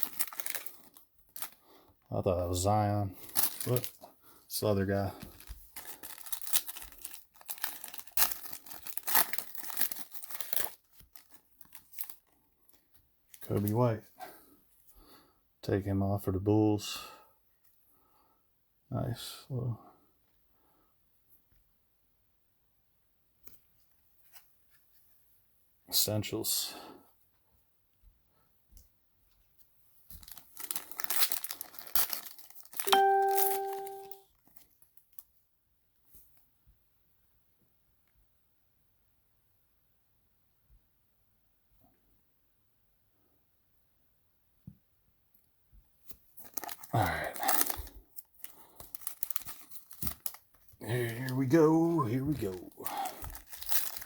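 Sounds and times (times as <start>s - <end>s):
card pack wrapper tearing: 0.0s - 1.6s, 3.2s - 4.0s, 5.2s - 12.8s, 30.2s - 34.8s, 46.4s - 54.0s
clear chime: 32.9s - 34.2s.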